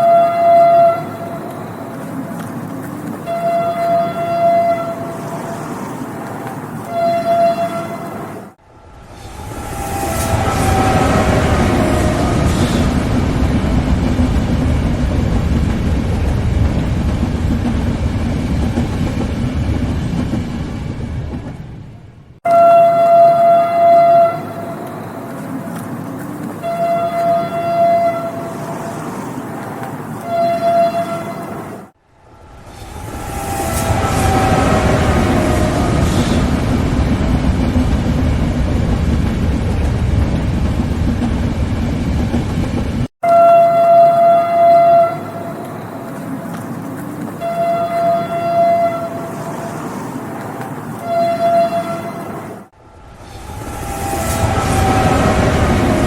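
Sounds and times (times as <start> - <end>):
train horn blasts: 0.0 - 2.2, 3.2 - 5.6, 6.8 - 8.2, 8.8 - 13.2, 22.4 - 25.8, 26.6 - 28.9, 30.2 - 31.6, 32.2 - 36.8, 43.2 - 46.1, 47.4 - 49.9, 51.0 - 52.4, 53.3 - 56.0
moving train rumble: 0.0 - 56.0.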